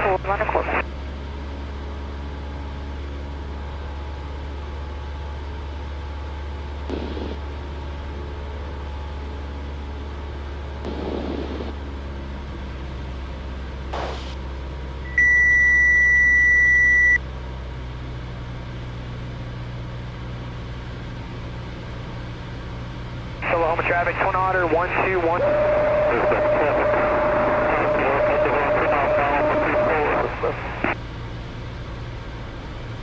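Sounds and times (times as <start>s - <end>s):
aircraft engine drone: 0.0s - 17.2s, 21.1s - 33.0s
electronic beep: 15.1s - 17.2s.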